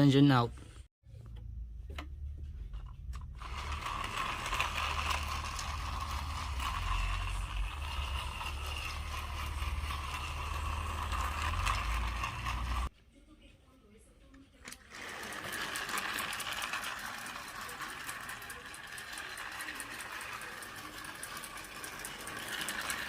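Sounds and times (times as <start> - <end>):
toy train motors whirring: 3.2 - 12.9, 14.6 - 23.0.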